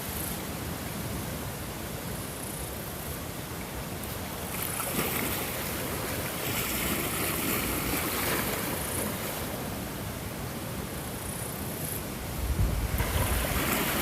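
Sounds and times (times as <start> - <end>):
ocean waves washing on shore: 0.0 - 14.0
steady hiss of surf: 0.0 - 14.0.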